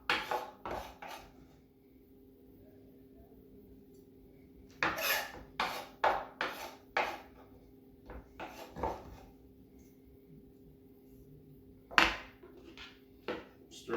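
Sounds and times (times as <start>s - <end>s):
utensil scraping mixing bowl: 0.0s - 1.4s.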